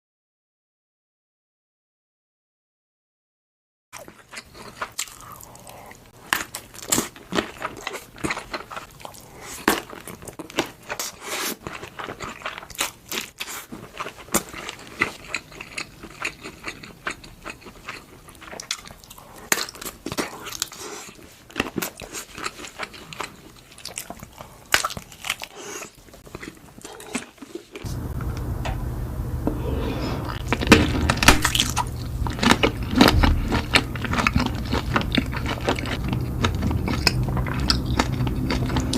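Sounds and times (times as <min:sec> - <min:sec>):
crunchy chewing of sausages: 0:04.0 - 0:27.9, 0:30.3 - 0:38.9
steady low hum: 0:27.9 - 0:38.9.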